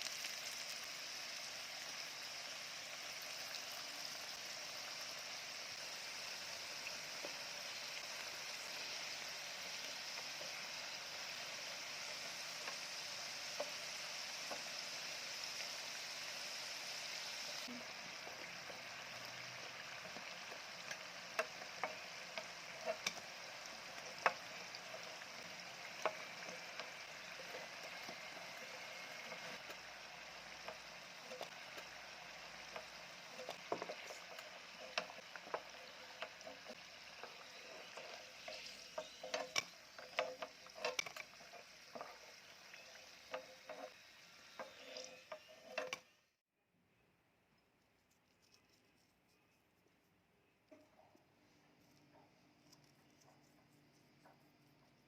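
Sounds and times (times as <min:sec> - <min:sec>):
food sizzling in a frying pan: 0:00.0 - 0:46.3
utensil clicking against pan: 0:19.6 - 0:29.8, 0:32.6 - 0:44.0, 0:44.6 - 0:46.0.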